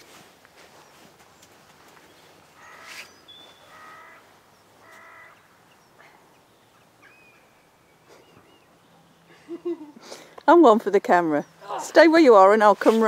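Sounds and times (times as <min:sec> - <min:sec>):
bird calling: 0:02.0 - 0:10.3.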